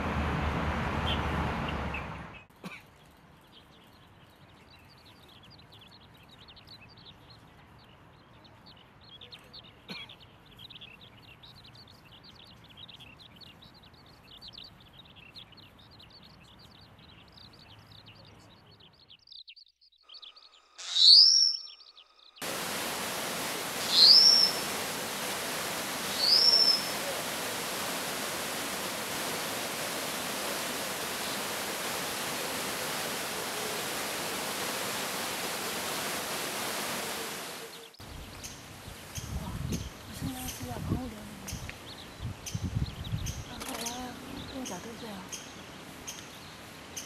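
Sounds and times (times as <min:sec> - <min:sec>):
birds twittering: 0:01.8 - 0:47.0
thrush shrill upswept calls: 0:20.7 - 0:38.0
stream rushing: 0:22.4 - 0:38.0.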